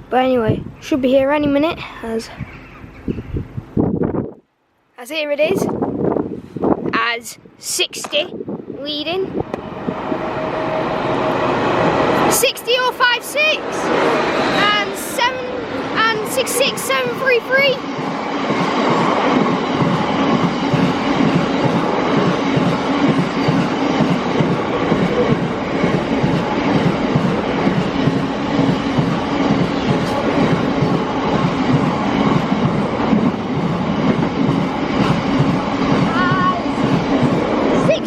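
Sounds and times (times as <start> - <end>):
freight train rolling past: 8.3 - 38.0
train wheels beating rhythmically: 9.3 - 38.0.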